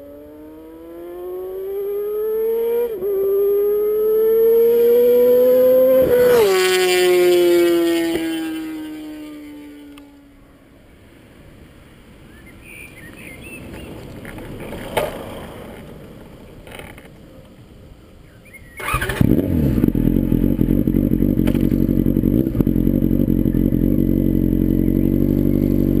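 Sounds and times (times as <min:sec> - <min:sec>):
motorcycle engine starting and idling: 0:02.3 - 0:10.2, 0:18.8 - 0:26.0
faint noise: 0:05.4 - 0:19.1.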